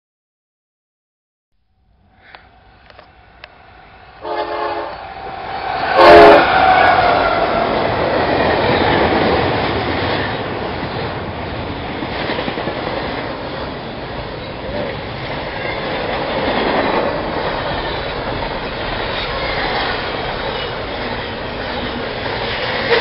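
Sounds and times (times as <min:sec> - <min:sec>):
freight train rolling past: 0:02.0 - 0:23.0
locomotive horn blasts: 0:04.2 - 0:05.1, 0:05.8 - 0:07.5
wheels rattling on rails: 0:04.9 - 0:23.0.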